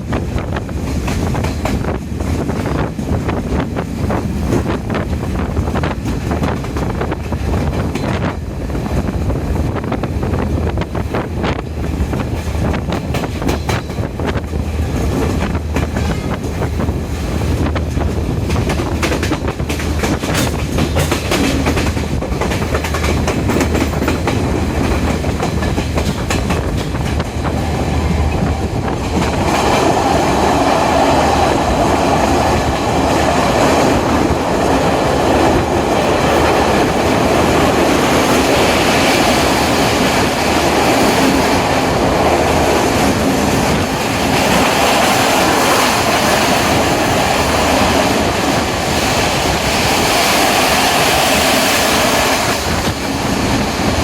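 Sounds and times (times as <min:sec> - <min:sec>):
train wheels clattering over joints: 0:00.0 - 0:08.4, 0:09.0 - 0:30.5
broad rushing noise: 0:00.0 - 0:54.0
low rumble of running train: 0:00.0 - 0:54.0.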